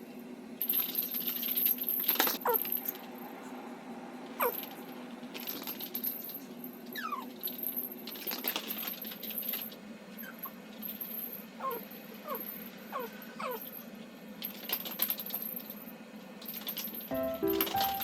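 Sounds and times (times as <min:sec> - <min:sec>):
dog whimpering: 0:04.4 - 0:04.6, 0:07.0 - 0:07.3, 0:11.6 - 0:13.7.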